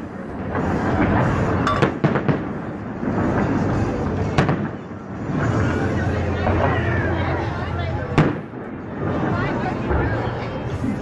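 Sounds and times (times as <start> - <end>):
fireworks booming: 0.1 - 5.9, 8.1 - 9.3
sharp firework bangs: 0.6 - 4.8, 8.2 - 8.6.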